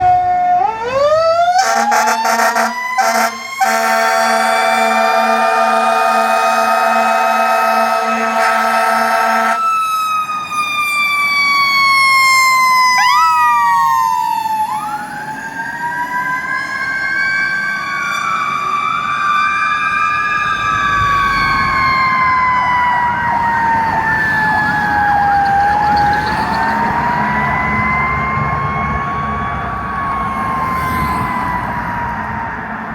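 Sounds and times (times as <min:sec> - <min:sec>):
fire truck siren wailing: 0:00.0 - 0:32.9
second siren sweeping and chirping: 0:09.6 - 0:32.6.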